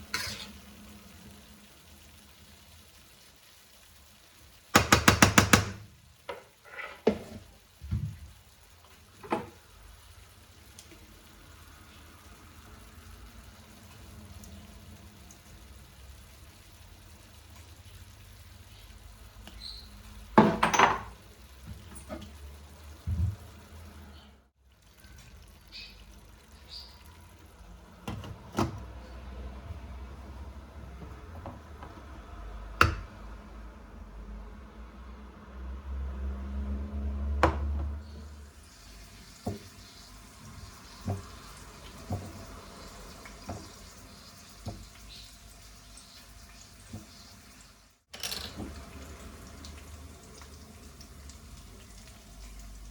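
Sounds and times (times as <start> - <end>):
dishes clattering: 20.4 - 21.1.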